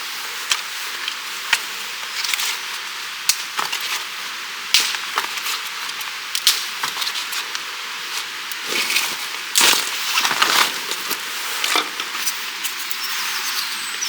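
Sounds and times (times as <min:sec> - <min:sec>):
steady rushing hiss: 0:00.0 - 0:14.0
wood cracking and snapping: 0:08.6 - 0:11.2.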